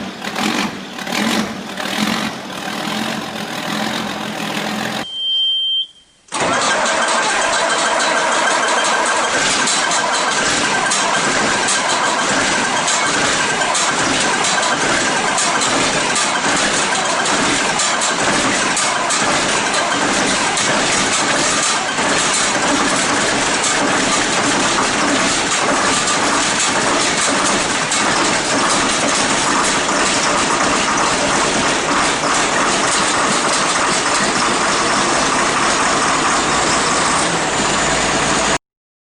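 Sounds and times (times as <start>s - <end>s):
diesel engine clattering: 0.0s - 5.0s, 6.3s - 38.6s.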